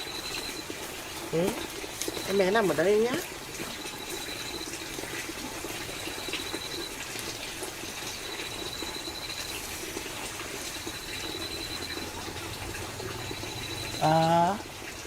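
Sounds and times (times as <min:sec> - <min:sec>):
thin high trill: 0:00.0 - 0:03.1, 0:03.7 - 0:07.1, 0:08.0 - 0:10.0, 0:10.7 - 0:14.6.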